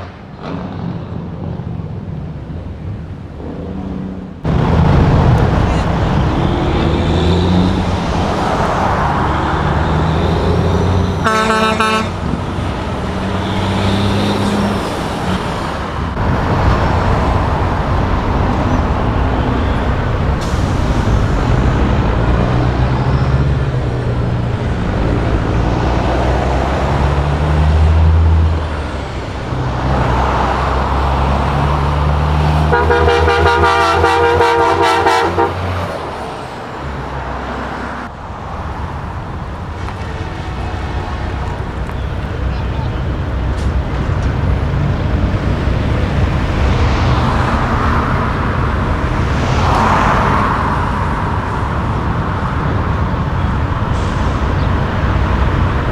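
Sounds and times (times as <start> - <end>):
trucks driving past: 0.0 - 55.9
truck horn blast: 4.5 - 14.7, 16.2 - 27.4, 32.5 - 35.9, 39.7 - 43.7.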